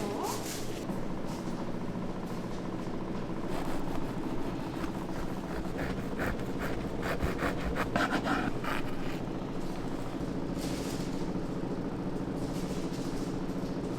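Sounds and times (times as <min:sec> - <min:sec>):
steady low hum: 0:00.7 - 0:10.8
rasping scrapes: 0:03.4 - 0:10.0.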